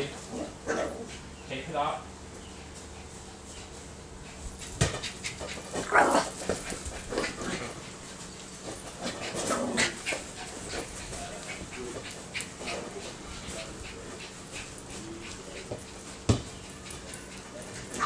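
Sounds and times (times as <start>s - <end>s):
dog panting and whining: 2.6s - 18.0s.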